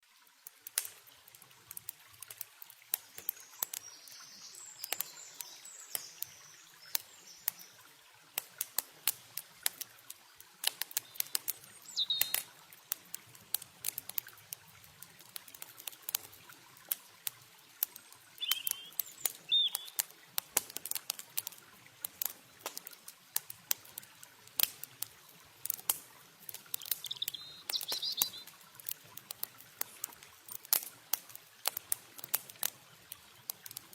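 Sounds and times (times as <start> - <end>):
running water hiss: 0.0 - 33.9
campfire crackling and popping: 0.2 - 33.9
bird chirps: 11.0 - 12.4, 18.4 - 20.0, 26.8 - 28.5.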